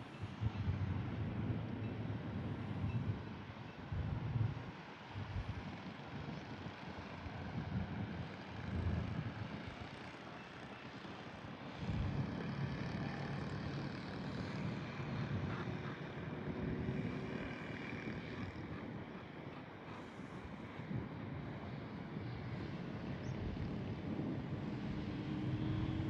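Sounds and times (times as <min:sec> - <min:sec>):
wind on microphone: 0:11.8 - 0:26.0.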